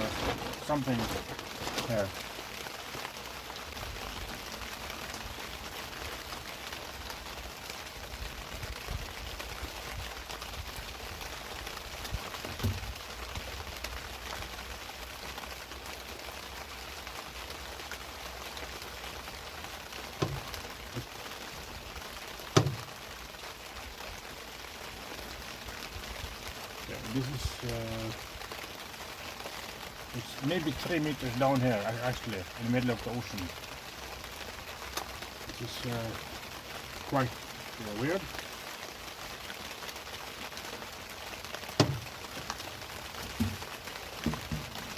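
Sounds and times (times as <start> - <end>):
heavy rain falling: 0.0 - 44.9
knocks: 41.8 - 42.1.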